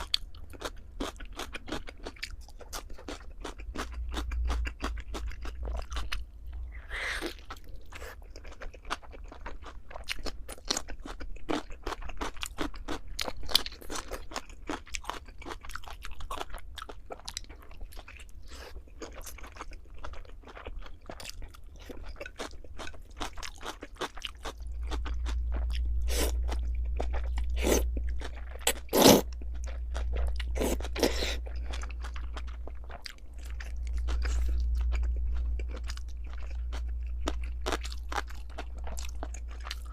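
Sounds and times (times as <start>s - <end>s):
steady low hum: 0.0s - 12.2s, 15.2s - 39.9s
person chewing and crunching food: 0.0s - 39.9s.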